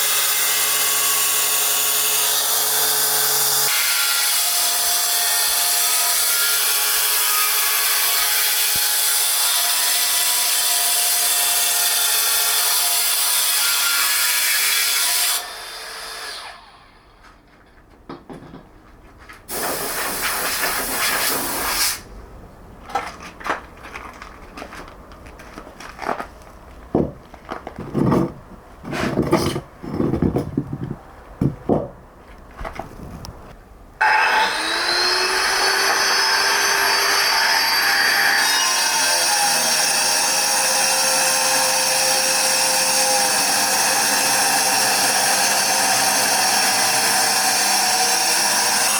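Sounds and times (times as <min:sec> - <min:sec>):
power tool on stone: 0:34.0 - 0:48.9.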